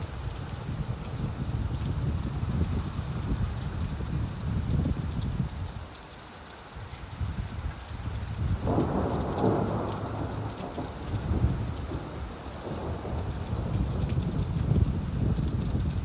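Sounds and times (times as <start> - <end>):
steady rain: 0.0 - 16.0
rolling thunder rumble: 8.2 - 16.0.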